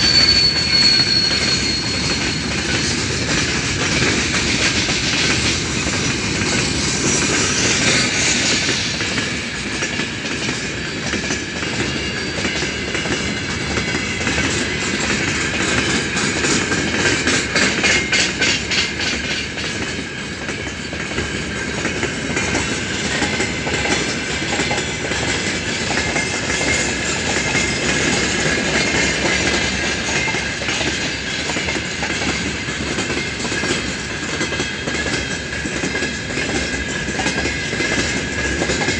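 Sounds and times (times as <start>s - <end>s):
faint high ringing tone: 0.0s - 2.5s
train wheels rumbling on rail: 0.0s - 38.9s.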